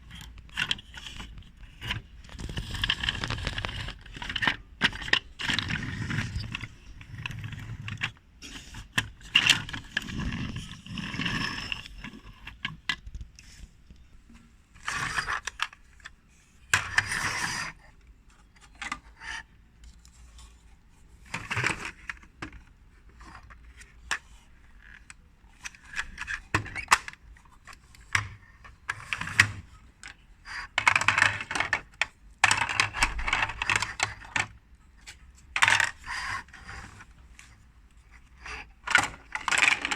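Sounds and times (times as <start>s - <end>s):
toy pieces clicking and knocking: 38.4s - 39.9s.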